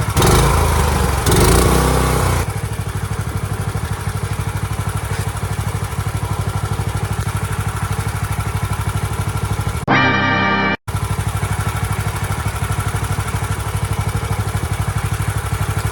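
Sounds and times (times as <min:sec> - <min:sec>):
small boat engine running: 0:00.0 - 0:09.8, 0:10.9 - 0:15.9.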